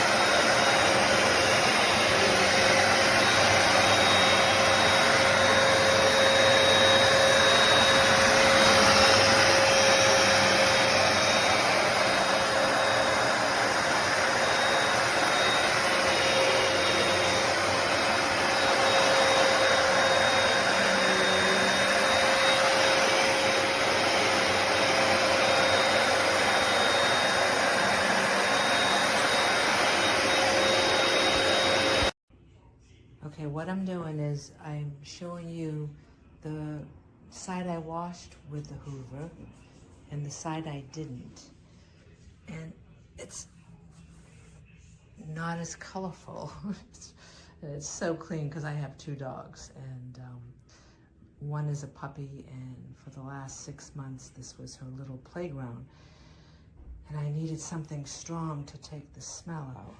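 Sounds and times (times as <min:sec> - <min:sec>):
carpet cleaner motor whining: 0:00.0 - 0:32.2.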